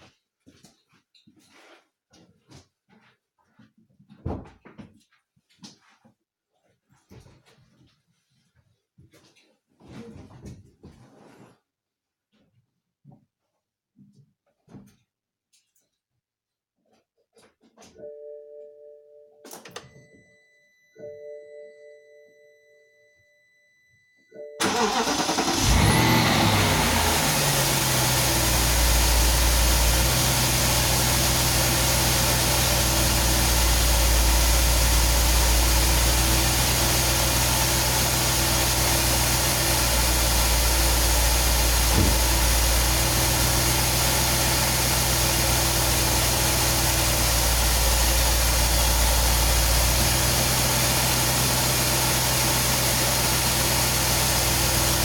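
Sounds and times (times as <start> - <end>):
car engine starting and idling: 24.6 - 55.0.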